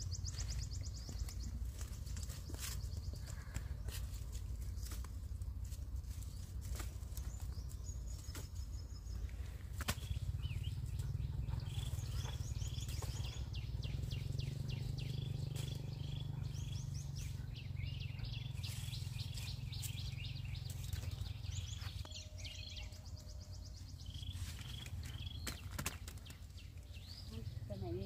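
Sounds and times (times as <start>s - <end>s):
small birds chirping: 0.0s - 28.0s
steady low rumble: 0.0s - 28.0s.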